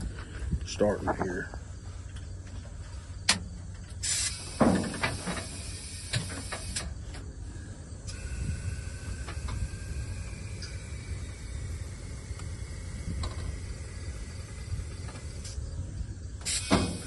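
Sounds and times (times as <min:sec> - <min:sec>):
faint steady whine: 0:00.0 - 0:17.0
compressed air hissing: 0:04.0 - 0:17.0.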